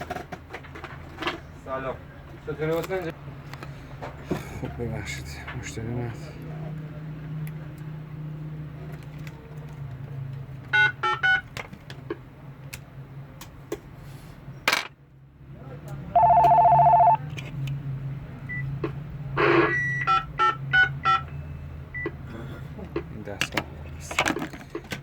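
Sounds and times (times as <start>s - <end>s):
steady telephone tone: 16.2s - 17.2s
telephone key beeps: 16.2s - 17.2s.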